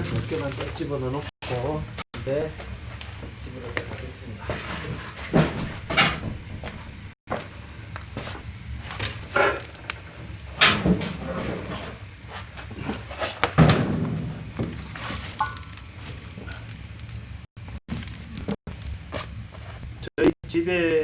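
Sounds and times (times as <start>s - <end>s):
logs thunking into firebox: 4.4s - 7.5s, 8.9s - 12.0s, 12.7s - 15.8s.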